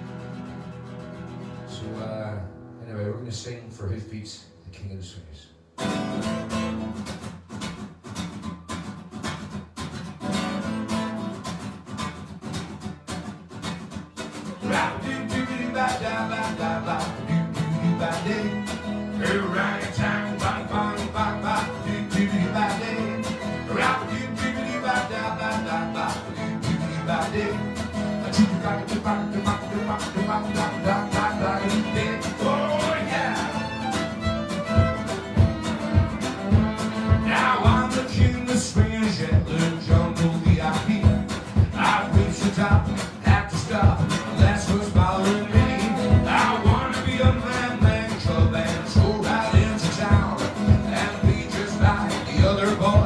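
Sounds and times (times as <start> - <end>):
strummed acoustic guitar: 0.0 - 3.0, 5.8 - 53.0
instruments playing a melody: 33.4 - 37.4.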